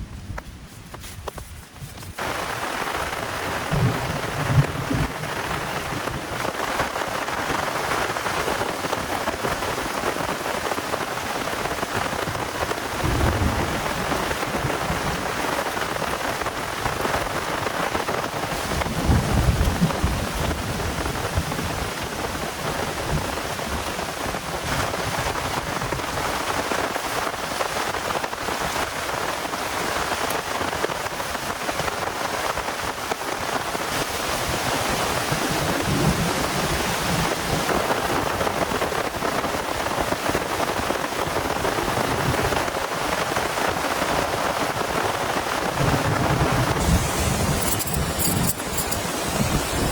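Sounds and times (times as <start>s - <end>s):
thunder rumbles: 2.2s - 6.5s, 12.7s - 16.4s, 18.6s - 21.9s, 45.7s - 49.9s
heavy rain falling: 2.2s - 49.9s.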